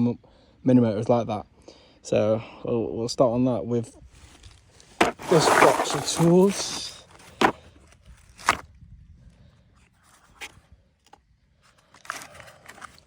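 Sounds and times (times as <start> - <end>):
rummaging in a toolbox: 4.2 - 8.6, 11.6 - 13.0.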